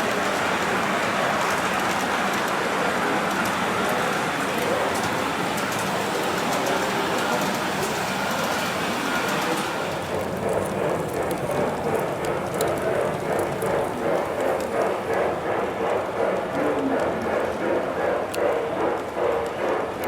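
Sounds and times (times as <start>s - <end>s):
model train wheels clattering on rail: 0.0s - 20.0s.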